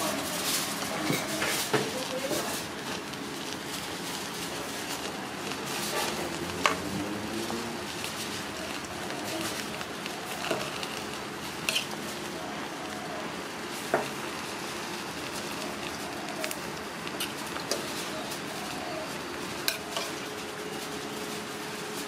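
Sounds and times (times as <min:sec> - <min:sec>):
batter sizzling in a pan: 0:00.0 - 0:22.0.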